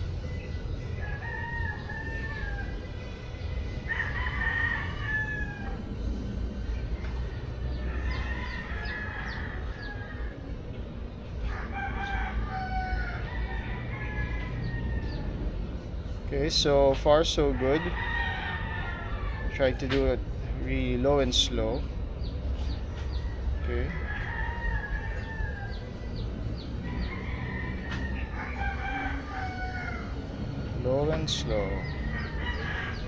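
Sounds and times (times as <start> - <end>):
roosters crowing: 0.0 - 33.0
steady low rumble: 0.0 - 33.0.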